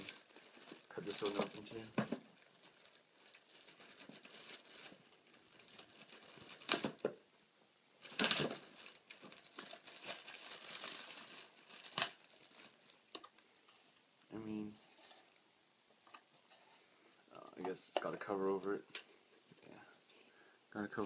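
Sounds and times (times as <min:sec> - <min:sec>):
plastic packaging crinkling: 0:00.0 - 0:07.0, 0:08.0 - 0:13.4
sharp plastic rips: 0:00.0 - 0:07.0, 0:08.0 - 0:13.4.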